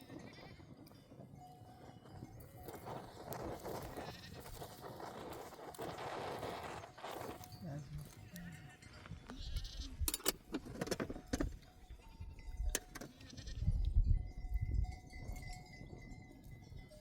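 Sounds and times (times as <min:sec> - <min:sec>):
sheep bleating: 0:08.0 - 0:10.0
sharp clicks and knocks: 0:10.0 - 0:11.6, 0:12.7 - 0:13.2.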